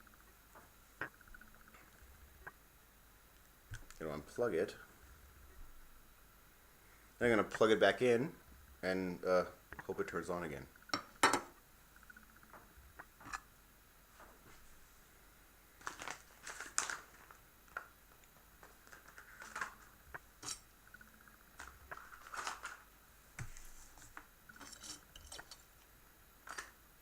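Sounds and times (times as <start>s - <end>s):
small objects clicking and rustling: 15.8s - 22.9s, 26.4s - 26.8s.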